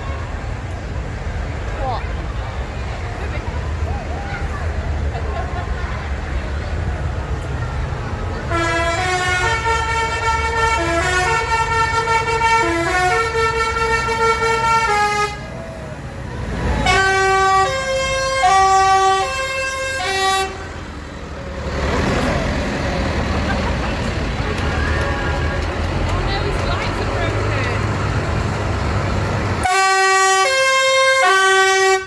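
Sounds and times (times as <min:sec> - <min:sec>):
tractor engines running: 0:00.0 - 0:32.0
musical vehicle horn playing held notes: 0:08.5 - 0:15.5, 0:16.8 - 0:20.8, 0:29.6 - 0:32.0.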